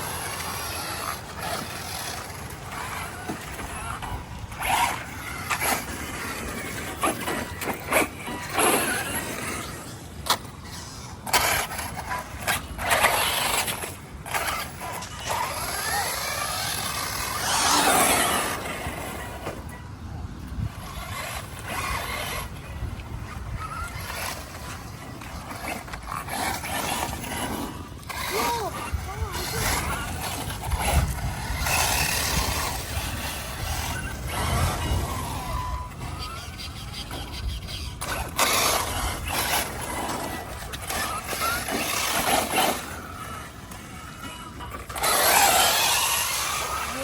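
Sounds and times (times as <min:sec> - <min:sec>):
electric motor whine: 0:20.6 - 0:47.0.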